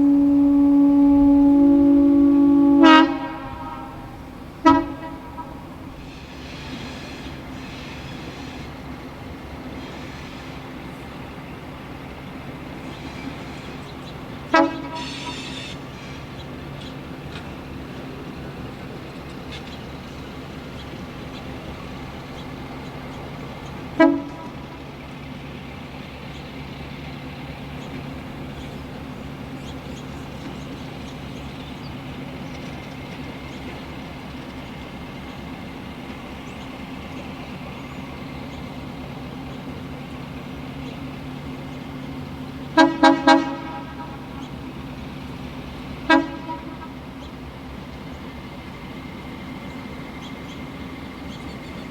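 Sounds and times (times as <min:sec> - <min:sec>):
locomotive horn toots: 0:00.0 - 0:08.9, 0:09.7 - 0:26.0, 0:38.8 - 0:47.4
engine drone: 0:00.0 - 0:51.9.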